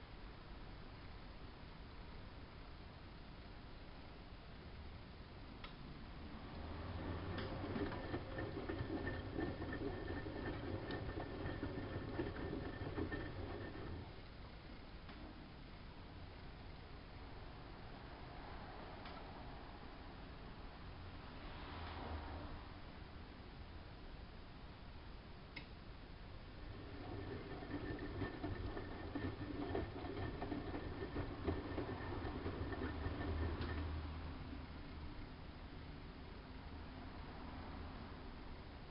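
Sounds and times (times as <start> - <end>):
low hum and faint whine: 0.0 - 38.9
washing machine motor humming: 6.2 - 14.2, 26.4 - 34.4.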